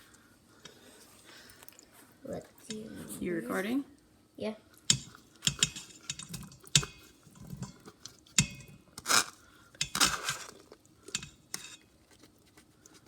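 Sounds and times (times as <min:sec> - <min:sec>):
spoon clinking against dish: 0:04.9 - 0:07.8, 0:08.4 - 0:08.8, 0:11.2 - 0:11.8.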